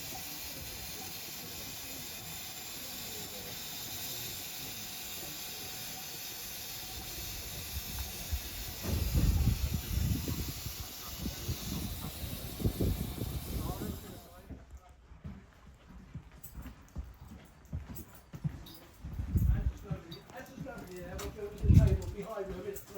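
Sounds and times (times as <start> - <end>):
steam locomotive hissing: 0.0 - 14.5.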